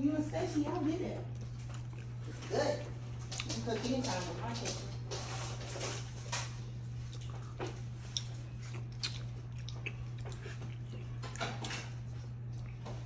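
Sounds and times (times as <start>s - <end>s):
person chewing food: 1.3s - 3.5s, 5.9s - 13.0s.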